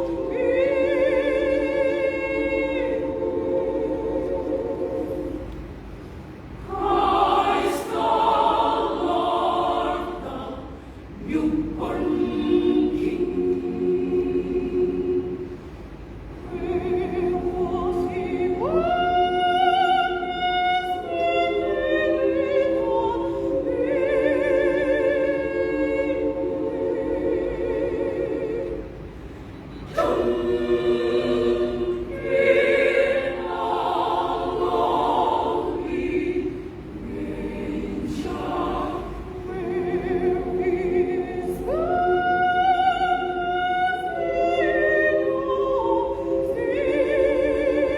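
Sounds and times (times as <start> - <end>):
women's choir singing: 0.0 - 47.9.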